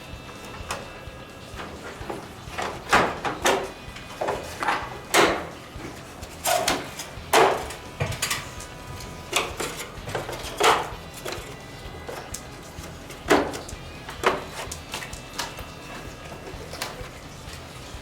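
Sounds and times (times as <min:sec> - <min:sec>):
hard knocks and clacks: 0:01.7 - 0:08.6.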